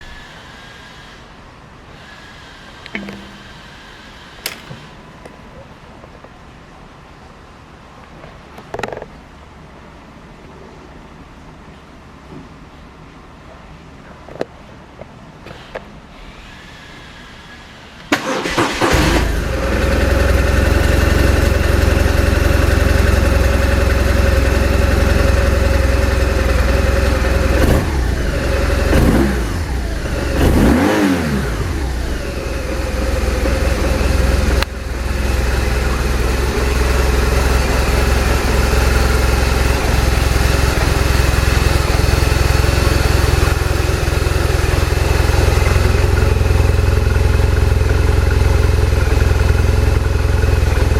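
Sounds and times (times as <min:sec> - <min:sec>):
motorcycle engine starting and idling: 0:02.8 - 0:05.0, 0:18.1 - 0:50.9
motorcycle engine revs: 0:18.2 - 0:49.6.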